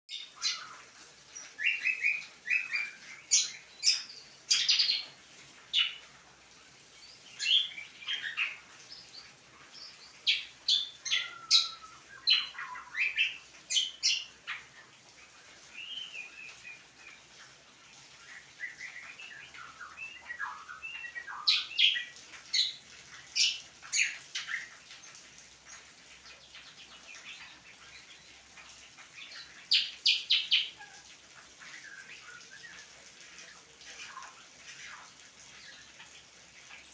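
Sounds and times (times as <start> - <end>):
songbird whistling and chirping: 1.4 - 5.0, 9.8 - 14.3, 15.7 - 16.8, 18.2 - 22.1.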